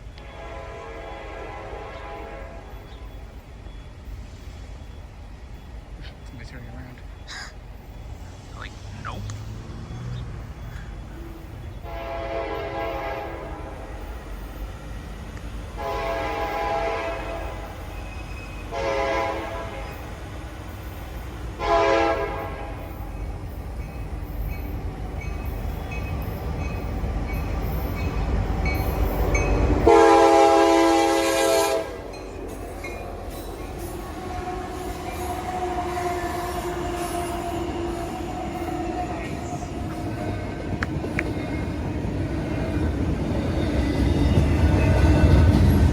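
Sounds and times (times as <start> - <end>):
faint steady squeal: 0.0 - 21.6, 22.2 - 29.9, 32.0 - 40.7
train cars rolling by: 0.0 - 45.9
locomotive horn blasts: 0.1 - 2.9, 11.8 - 14.1, 15.7 - 17.8, 18.6 - 20.1, 21.6 - 23.0, 29.6 - 32.2, 34.2 - 38.1
locomotive engine rumble: 1.6 - 45.9.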